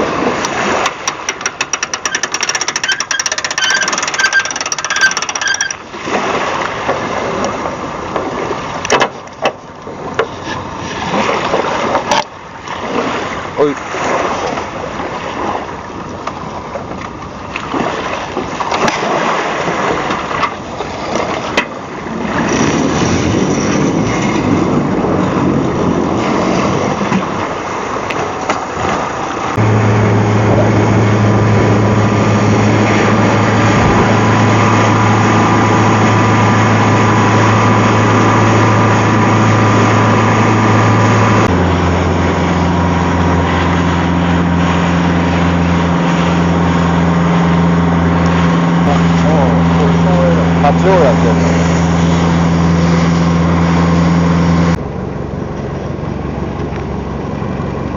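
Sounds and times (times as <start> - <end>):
water splashing: 0.0 - 54.8
motor boat engine hum: 0.0 - 57.9
wind noise: 22.0 - 50.7.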